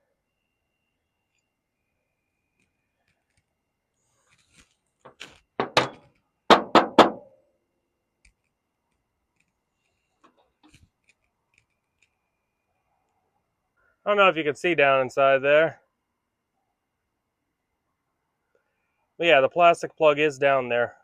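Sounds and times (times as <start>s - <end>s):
hard parts knocking: 5.6s - 7.3s
faint clicks: 8.2s - 12.2s.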